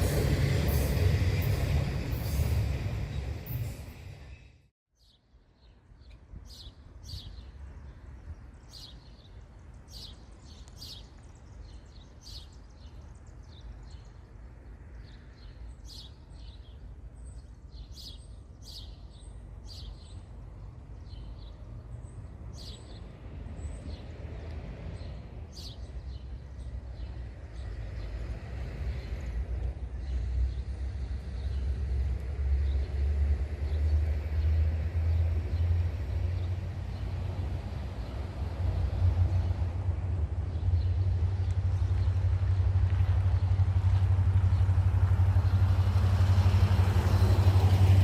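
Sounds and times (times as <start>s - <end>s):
low outdoor rumble: 34.1s - 48.0s.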